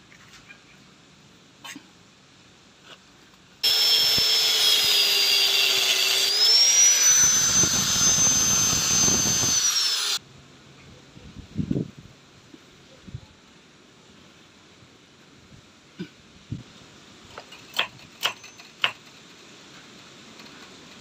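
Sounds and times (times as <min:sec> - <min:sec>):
power tool whining: 0:03.6 - 0:10.2.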